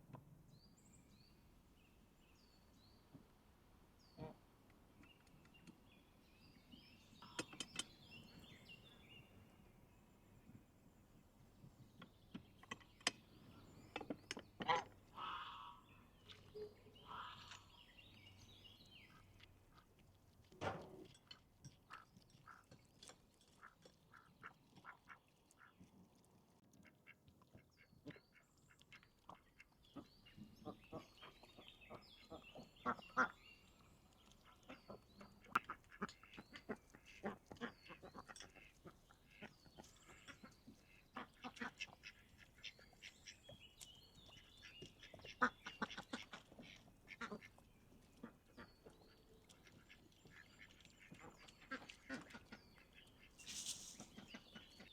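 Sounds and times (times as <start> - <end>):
small birds chirping: 4.0 - 10.7, 11.6 - 20.6, 21.2 - 54.9
ducks quacking: 16.5 - 17.8, 29.3 - 33.4, 34.5 - 43.4, 44.3 - 53.4
sharp clicks and knocks: 20.5 - 21.8.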